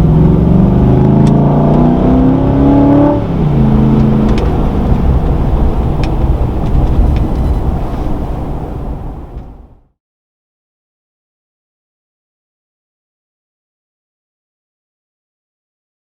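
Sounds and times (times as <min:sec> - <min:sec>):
truck exhaust revving: 0:00.0 - 0:09.6.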